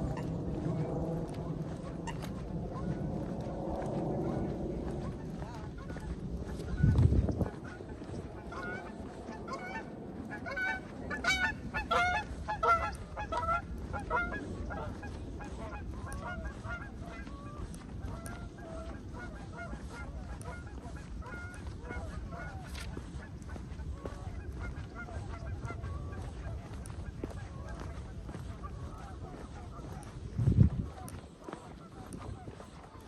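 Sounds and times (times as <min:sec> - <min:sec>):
geese honking: 0:00.0 - 0:33.0.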